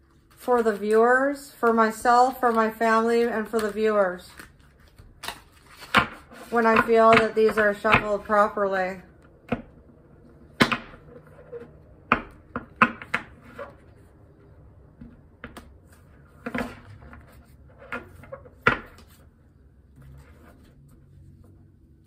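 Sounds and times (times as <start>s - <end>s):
cards being shuffled: 2.2s - 6.9s.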